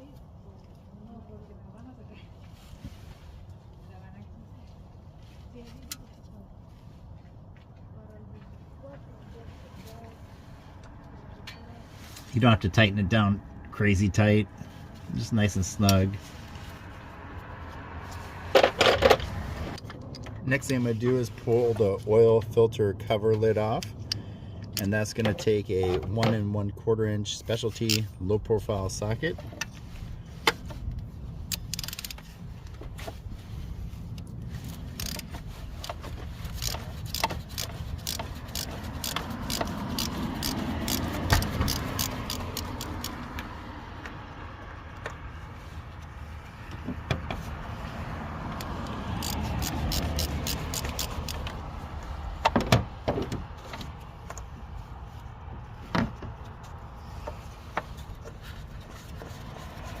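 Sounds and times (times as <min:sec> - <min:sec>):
metallic tool clicks: 0:49.2 - 0:51.6.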